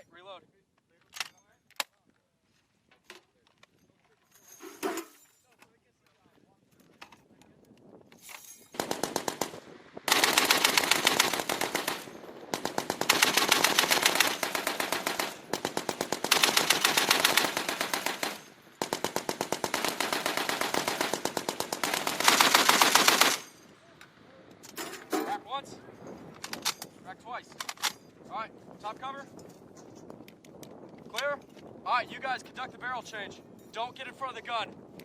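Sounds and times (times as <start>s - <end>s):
heavy machine gun bursts: 8.8s - 23.6s.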